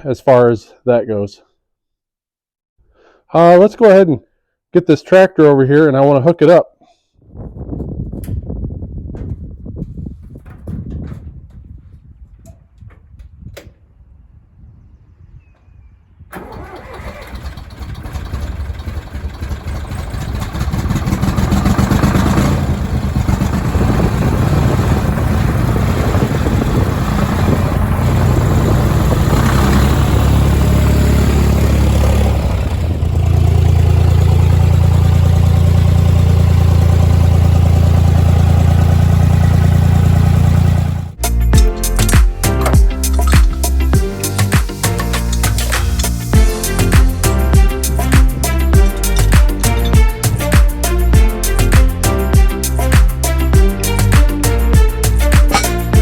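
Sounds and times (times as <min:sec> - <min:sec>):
diesel tractor engine: 0:16.3 - 0:56.0.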